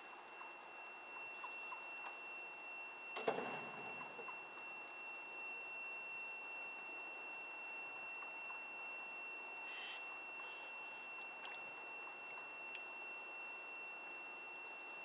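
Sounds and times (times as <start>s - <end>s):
faint pond ambience: 0.0s - 15.0s
high-pitched whine: 0.0s - 15.0s
bird call: 9.6s - 10.8s.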